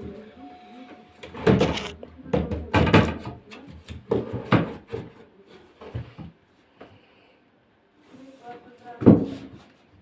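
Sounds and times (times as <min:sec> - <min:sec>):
hard objects knocking and clattering: 0:01.3 - 0:05.2.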